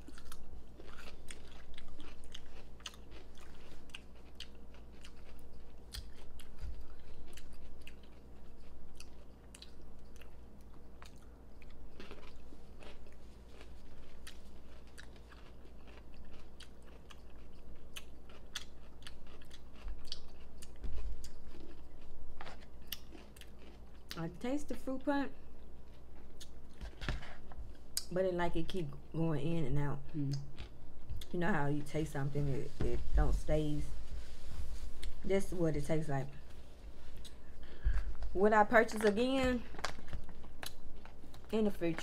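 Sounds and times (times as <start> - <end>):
wet crunching of pickles: 0.0 - 24.8, 37.1 - 42.0.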